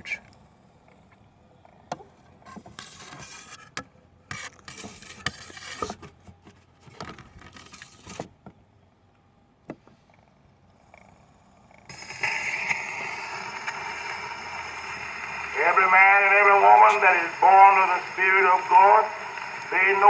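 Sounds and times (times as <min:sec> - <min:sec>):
scraping and rustling: 0:02.2 - 0:08.3.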